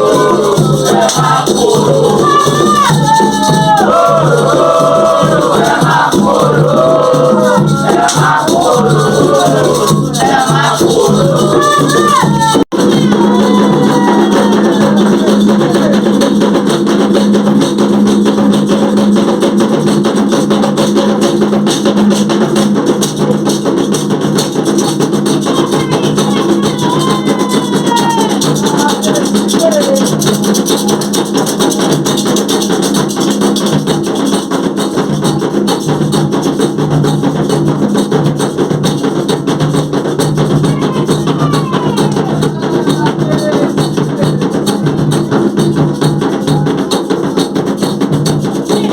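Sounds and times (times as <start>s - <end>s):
voices singing: 0.0s - 16.7s, 24.8s - 33.4s, 39.0s - 48.9s
shaker rattle: 0.0s - 18.7s, 19.3s - 48.9s
drums playing: 0.0s - 48.9s.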